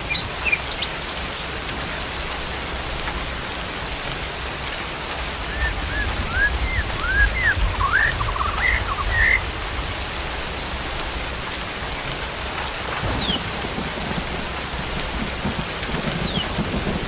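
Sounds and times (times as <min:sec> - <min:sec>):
falling rain: 0:00.0 - 0:17.0
bird chirping and whistling: 0:00.1 - 0:01.5, 0:05.5 - 0:09.4.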